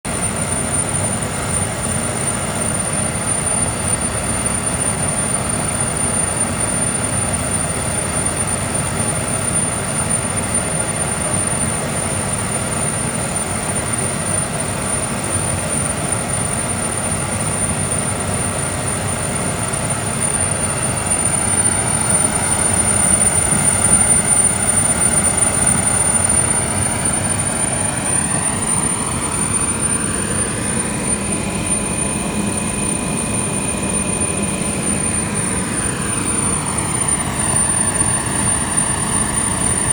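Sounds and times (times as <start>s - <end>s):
thin high whine: 0.1s - 39.9s
faint rising tones: 20.6s - 39.9s.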